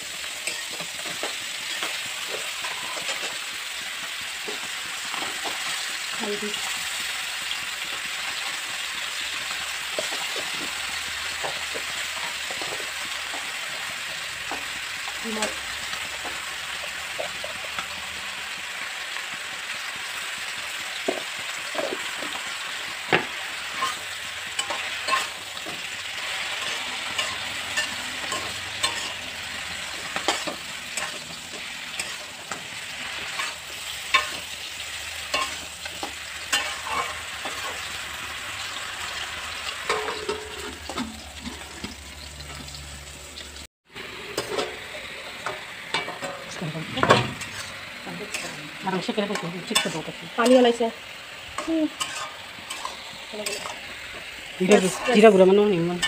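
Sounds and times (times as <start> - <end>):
mushrooms sizzling in a pan: 0.0 - 56.0
steel ladle scraping a pan: 0.3 - 3.4, 23.1 - 42.7, 44.0 - 50.8, 51.4 - 56.0.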